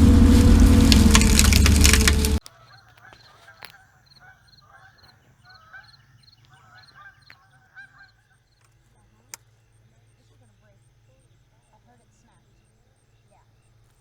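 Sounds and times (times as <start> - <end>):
loud crackling burst: 0.0 - 2.5
faint honking animal calls: 0.0 - 13.8.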